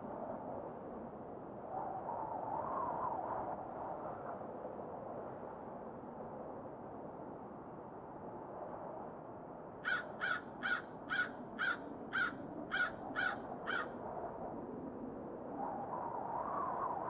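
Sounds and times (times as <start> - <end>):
bird harsh calls: 9.8 - 13.9.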